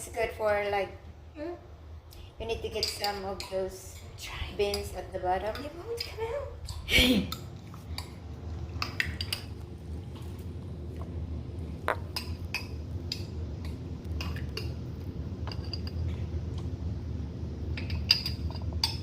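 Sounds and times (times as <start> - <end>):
low hum: 3.4 - 19.0
spoon clinking against bowls: 17.8 - 19.0.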